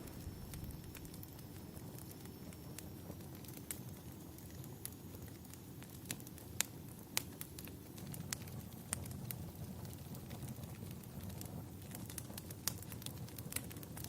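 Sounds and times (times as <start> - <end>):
low rumble: 0.0 - 1.2
wood fire crackling and popping: 0.0 - 14.0.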